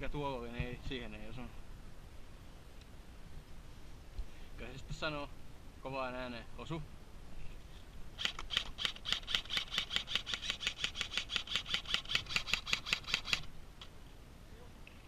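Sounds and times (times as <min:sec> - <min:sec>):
rapid mechanical clicks: 0:08.2 - 0:13.5.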